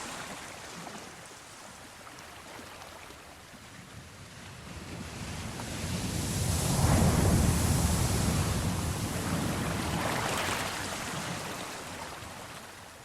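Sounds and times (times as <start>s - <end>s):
ocean waves breaking: 4.5s - 12.8s.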